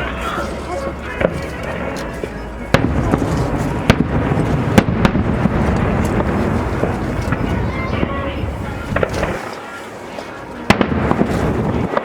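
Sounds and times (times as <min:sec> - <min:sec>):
low rumble of bursts: 0:00.0 - 0:09.4
fireworks bangs: 0:02.7 - 0:12.0.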